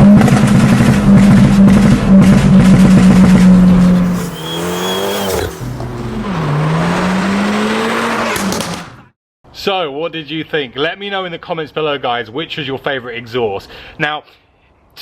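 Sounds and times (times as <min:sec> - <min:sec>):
car engine revving: 0:00.2 - 0:09.1.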